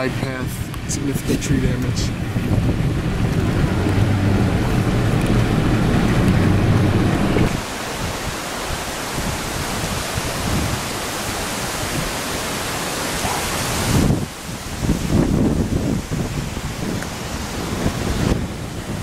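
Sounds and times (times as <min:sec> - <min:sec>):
car road and wind noise: 0:00.0 - 0:19.0
outdoor wind hiss: 0:00.0 - 0:19.0.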